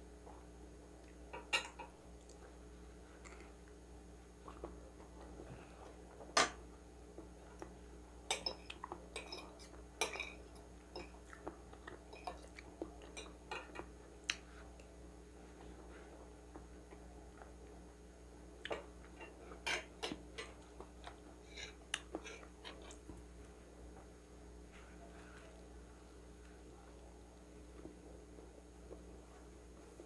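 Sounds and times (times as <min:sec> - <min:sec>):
close-up chewing: 0:10.5 - 0:15.0.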